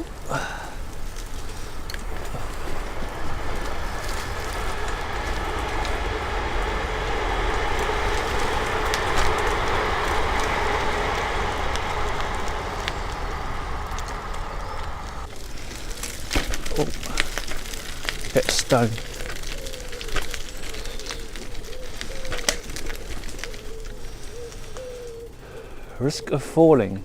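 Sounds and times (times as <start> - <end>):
train passing: 0.0 - 20.0.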